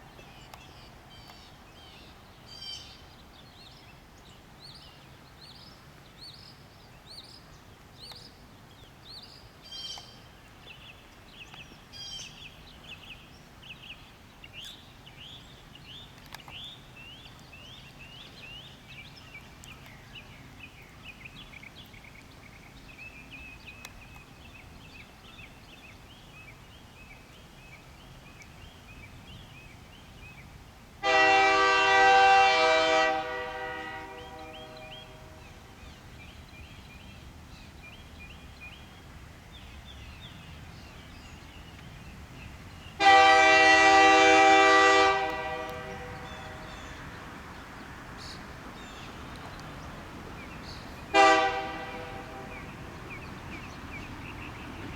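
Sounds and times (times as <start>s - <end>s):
songbird chirping: 0.0s - 54.9s
locomotive air horn blast: 31.0s - 35.5s, 43.0s - 47.0s, 51.1s - 52.7s.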